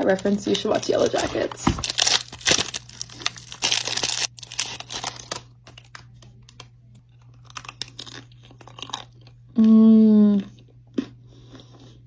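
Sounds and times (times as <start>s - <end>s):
plastic wrapper crinkling: 0.0s - 9.1s.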